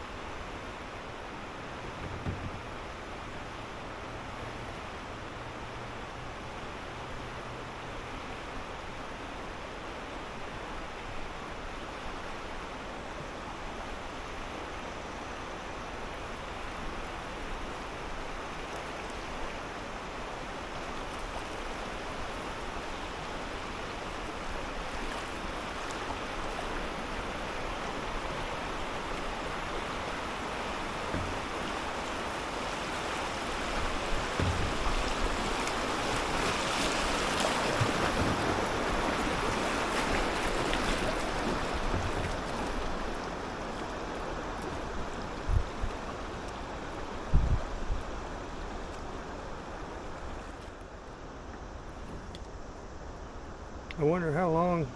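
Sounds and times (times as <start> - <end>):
river water rushing: 0.0 - 54.9
low thumps: 1.8 - 2.7, 34.2 - 35.2.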